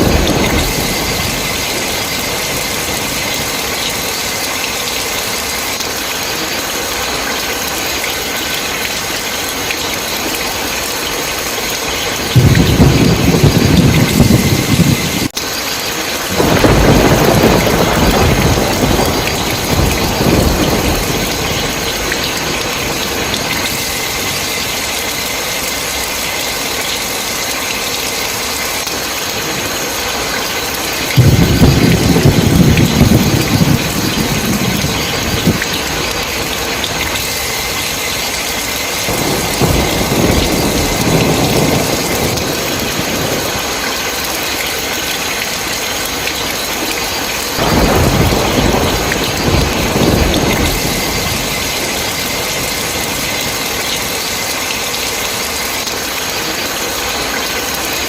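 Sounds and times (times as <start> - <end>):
rolling thunder: 0.0 - 5.8, 11.4 - 15.3, 16.1 - 25.3, 31.1 - 45.8, 47.6 - 54.4
heavy rain hissing: 0.0 - 58.0.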